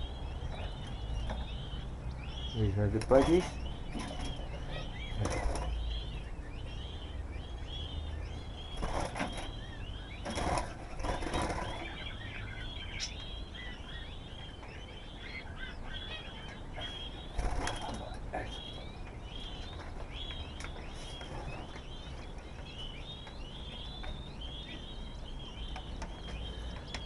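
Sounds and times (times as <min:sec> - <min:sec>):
budgerigars chattering: 0:00.0 - 0:27.0
wings flapping: 0:10.3 - 0:12.0, 0:17.3 - 0:18.2.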